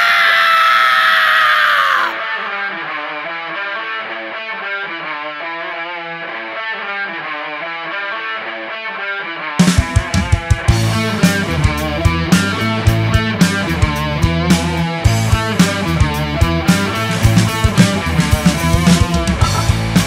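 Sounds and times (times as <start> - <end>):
picked electric guitar line: 2.1 - 20.0
drums: 9.4 - 20.0
distorted guitar chord: 9.6 - 20.0.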